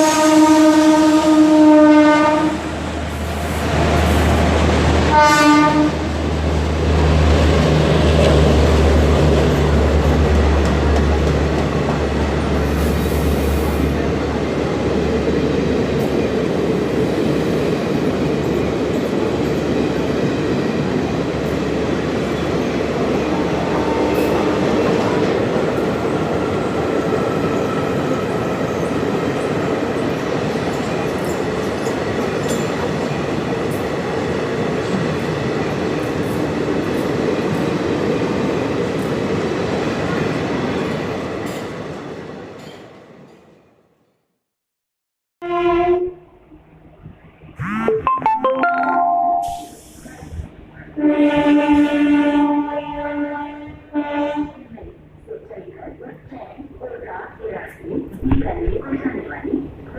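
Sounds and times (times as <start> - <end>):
train horn blast: 0.0 - 2.8, 5.1 - 6.1, 23.4 - 25.4, 45.4 - 46.4, 50.9 - 54.8.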